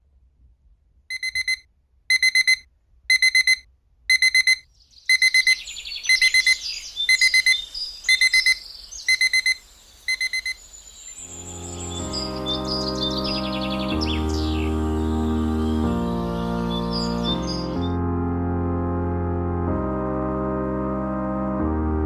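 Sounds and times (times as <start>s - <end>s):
digital alarm clock beeping: 1.1s - 10.6s
birds chirping: 4.4s - 18.0s
music: 11.3s - 22.0s.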